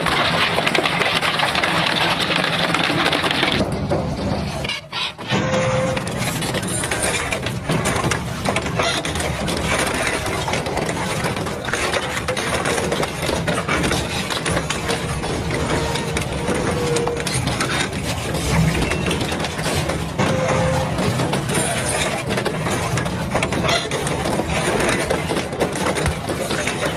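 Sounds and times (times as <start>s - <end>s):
shredder machine drone: 0.0s - 26.9s.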